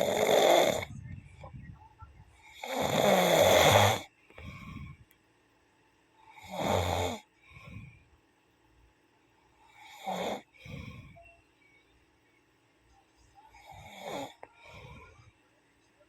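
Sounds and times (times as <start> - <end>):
rasping snoring: 0.0 - 0.9, 2.5 - 4.1, 6.4 - 7.2, 9.8 - 10.5, 13.6 - 15.2.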